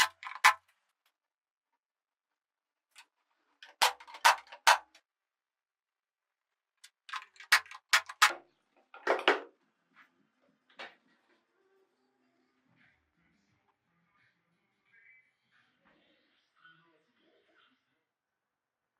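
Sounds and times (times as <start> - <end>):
carpentry taps and knocks: 3.6 - 5.0, 9.0 - 9.5.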